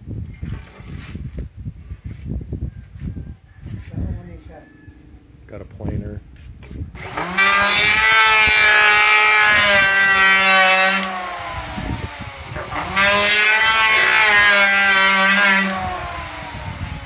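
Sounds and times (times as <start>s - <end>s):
electric planer whining: 7.0s - 17.0s.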